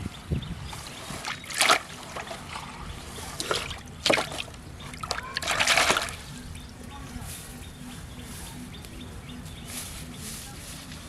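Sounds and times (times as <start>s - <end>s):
water splashing: 0.8s - 6.4s.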